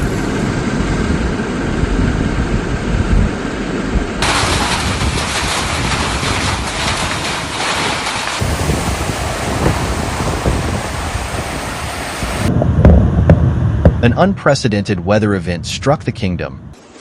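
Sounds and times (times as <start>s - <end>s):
wind rumbling on microphone: 0.0s - 16.8s
heavy precipitation hiss: 4.2s - 12.5s.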